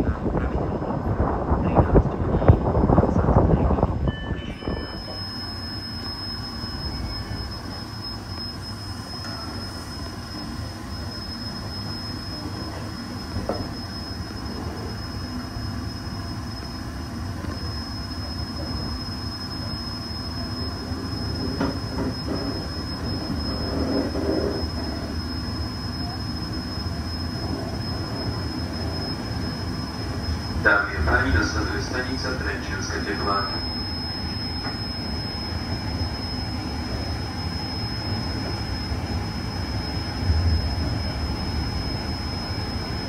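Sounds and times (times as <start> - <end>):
train wheels rumbling on rails: 0.0 - 6.4, 20.4 - 25.7
thin high whine: 0.0 - 43.0.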